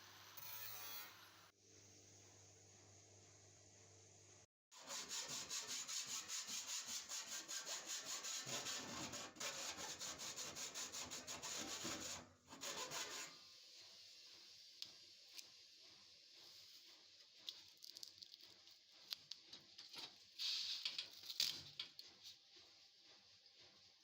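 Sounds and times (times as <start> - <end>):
hand tool scraping back and forth: 4.9 - 13.4.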